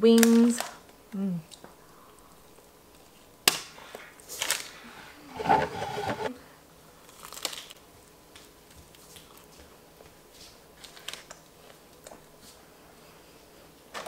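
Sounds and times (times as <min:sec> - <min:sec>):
parchment paper rustling: 0:04.3 - 0:06.3
close-up chewing crunches: 0:07.0 - 0:07.8.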